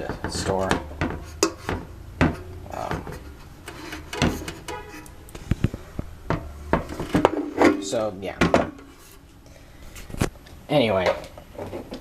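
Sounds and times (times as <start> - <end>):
knocks and clicks of handling: 0.0 - 9.0.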